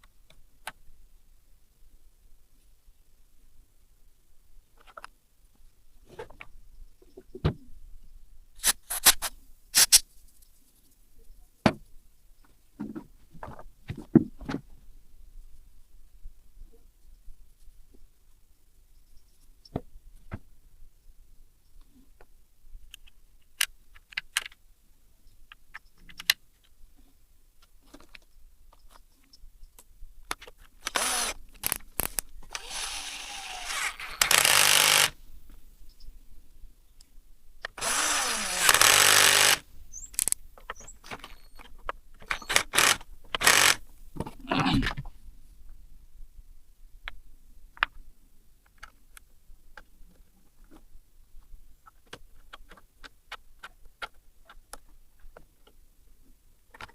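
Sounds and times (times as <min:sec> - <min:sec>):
parts clicking and knocking: 0:30.3 - 0:35.1, 0:37.6 - 0:44.3
rushing whirring tool bursts: 0:30.8 - 0:31.4, 0:32.5 - 0:35.2, 0:37.8 - 0:39.6, 0:42.4 - 0:43.8.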